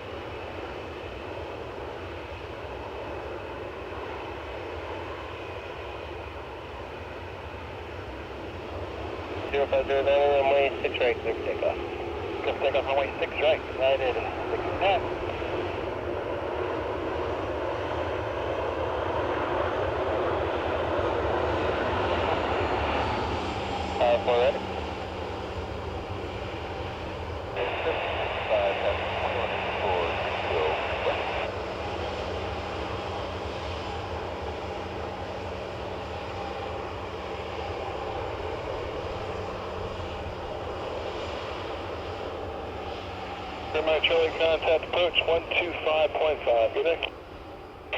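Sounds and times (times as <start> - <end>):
airliner engines running: 0.0 - 47.9.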